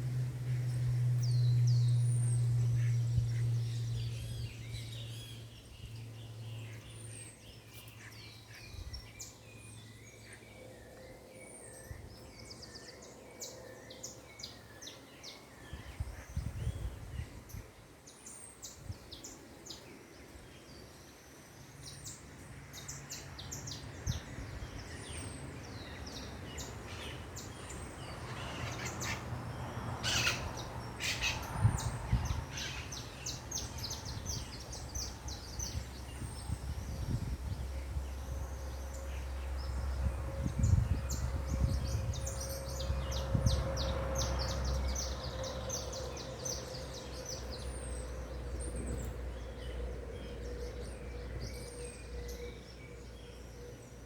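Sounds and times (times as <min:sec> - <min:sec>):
low steady rumble: 0:00.0 - 0:06.9
small birds chirping: 0:00.0 - 0:54.0.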